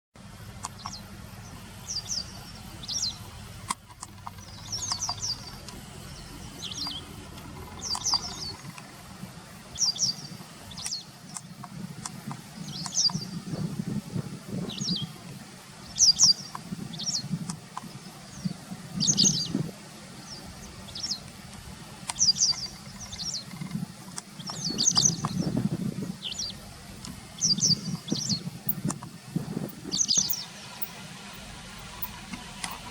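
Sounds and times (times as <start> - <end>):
low steady rumble: 0.2 - 32.9
bird chirping: 0.6 - 9.0, 9.7 - 11.4, 12.6 - 13.7, 14.6 - 15.2, 15.8 - 21.3, 22.1 - 31.0.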